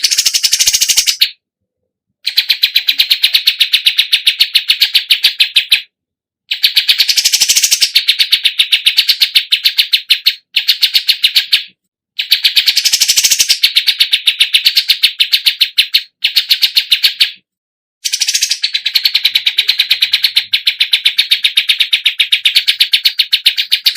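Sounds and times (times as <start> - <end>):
songbird chirping: 18.0 - 23.9.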